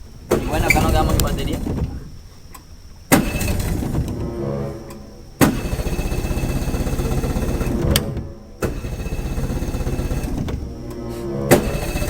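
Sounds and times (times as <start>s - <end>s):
electric starter cranking: 3.1s - 12.0s.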